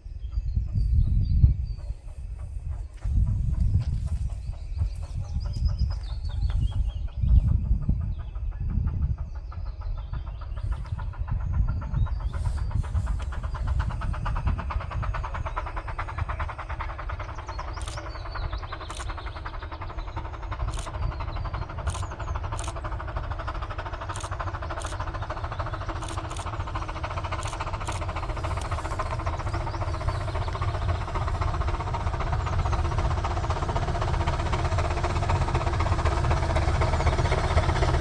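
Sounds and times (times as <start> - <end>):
miniature steam train clattering: 0.1 - 38.0
sharp clicks: 17.7 - 18.2, 18.8 - 19.4, 20.6 - 22.9, 24.0 - 38.0.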